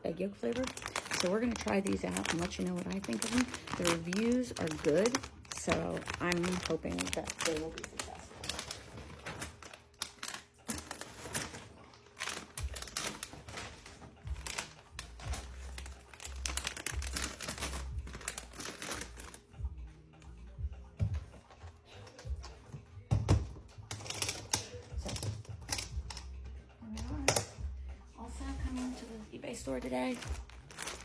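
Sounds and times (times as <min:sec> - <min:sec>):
plastic packages rustling: 0:00.1 - 0:19.6, 0:23.8 - 0:26.4, 0:28.7 - 0:31.0.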